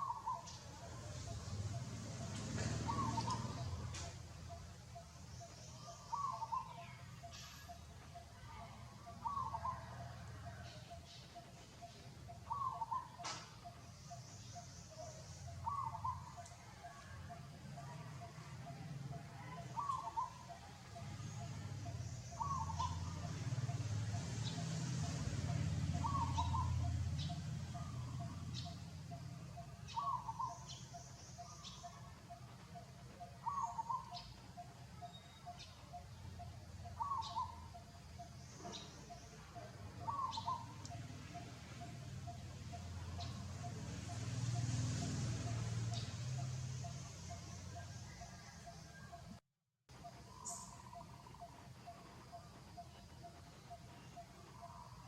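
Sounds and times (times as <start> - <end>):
bird calling: 0.0 - 1.4, 2.2 - 23.9, 25.4 - 49.0, 50.0 - 55.0
bird warbling call: 14.5 - 16.6, 19.4 - 20.6, 22.2 - 23.3, 25.9 - 28.8, 33.2 - 39.3, 40.0 - 41.1.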